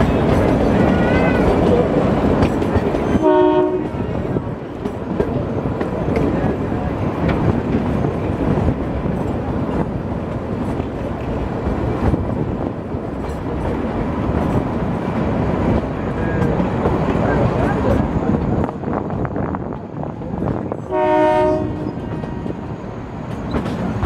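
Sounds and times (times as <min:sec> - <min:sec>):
train carriages rumbling on track: 0:00.0 - 0:24.0
wheels clattering over rails: 0:23.2 - 0:24.0.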